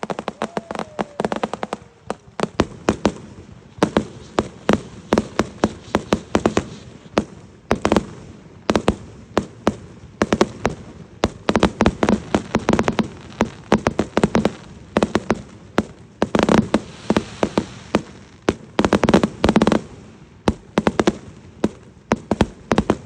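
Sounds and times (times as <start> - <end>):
falling firework whistle: 0.0 - 2.4
fireworks bangs and pops: 0.0 - 23.0.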